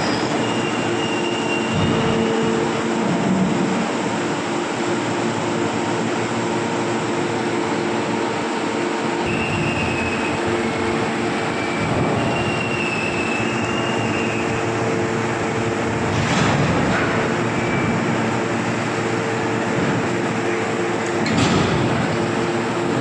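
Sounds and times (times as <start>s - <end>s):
high mechanical squeals: 0.0s - 2.5s, 9.3s - 15.0s
machinery humming: 0.0s - 23.0s.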